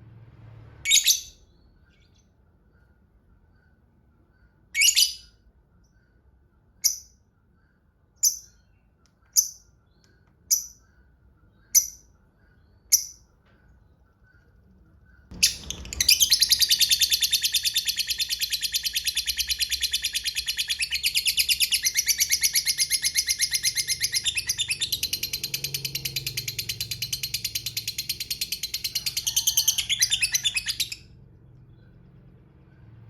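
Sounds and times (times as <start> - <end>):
lovebird rapid high chirps: 15.1 - 31.1.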